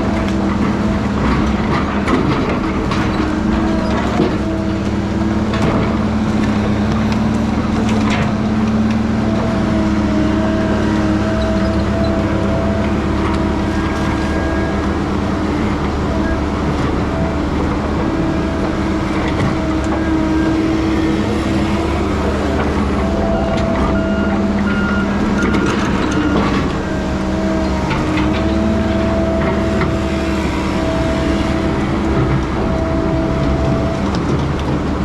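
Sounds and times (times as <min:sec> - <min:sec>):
heavy diesel machinery running: 0:00.0 - 0:35.0
higher tone: 0:12.5 - 0:34.1.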